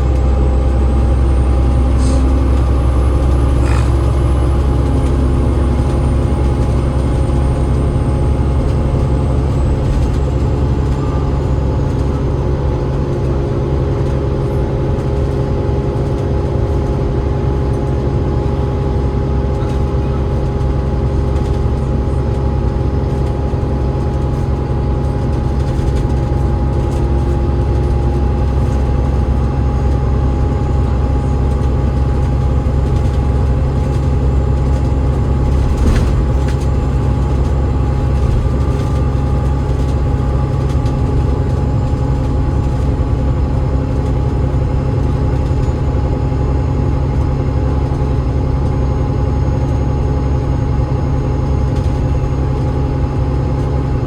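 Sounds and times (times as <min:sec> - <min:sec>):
high gearbox whine: 0:00.0 - 0:12.7
diesel bus engine drone: 0:00.0 - 0:54.0.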